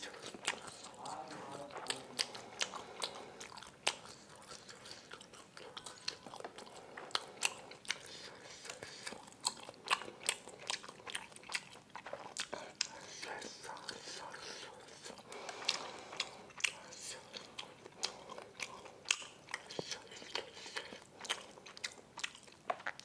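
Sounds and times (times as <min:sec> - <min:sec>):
close chewing mouth sounds: 0:00.0 - 0:23.0.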